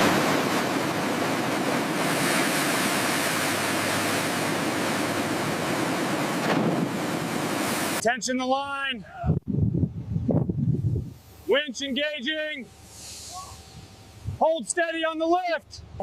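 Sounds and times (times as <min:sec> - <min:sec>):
sea surf: 0:00.0 - 0:08.0, 0:11.4 - 0:13.8
wind: 0:00.0 - 0:16.0.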